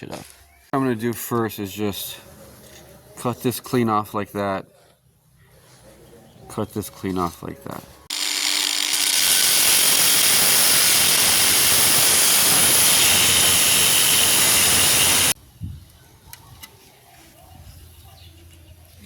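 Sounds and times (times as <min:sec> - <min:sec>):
power tool cutting steel pipe: 0:08.1 - 0:15.4.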